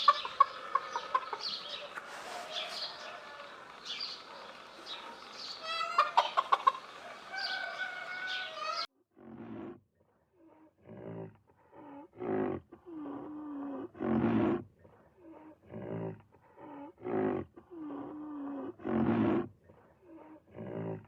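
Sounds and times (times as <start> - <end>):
low drawn-out growls: 9.1 - 9.8, 10.5 - 21.0
big cat roaring: 9.2 - 9.8, 10.8 - 14.6, 15.3 - 19.5, 20.2 - 21.0.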